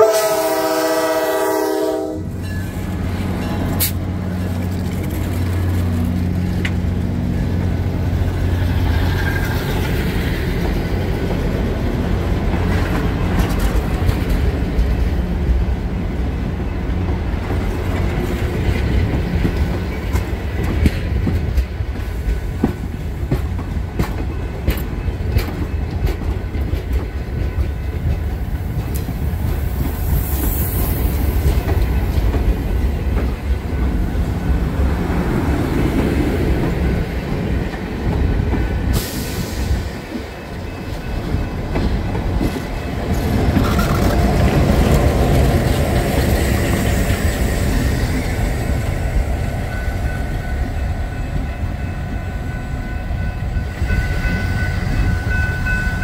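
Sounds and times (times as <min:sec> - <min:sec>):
train cars rumbling past: 0:00.0 - 0:56.0
wheels clicking over rail joints: 0:02.4 - 0:15.2, 0:16.8 - 0:34.1, 0:40.2 - 0:47.3.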